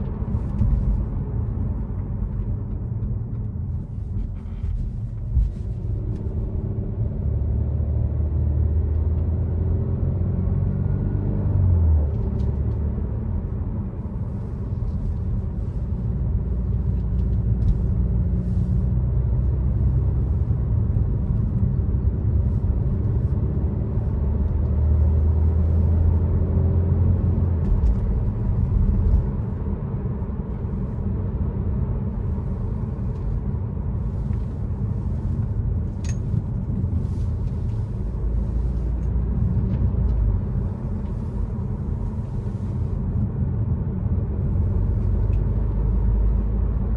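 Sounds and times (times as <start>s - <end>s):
road rumble: 0.0s - 46.9s
car exhaust drone: 12.1s - 46.9s.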